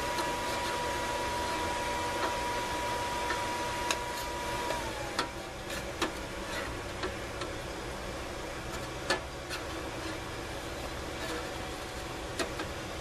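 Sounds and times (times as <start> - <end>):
thin whine: 0.0 - 7.5
forge blower rushing: 0.0 - 13.0.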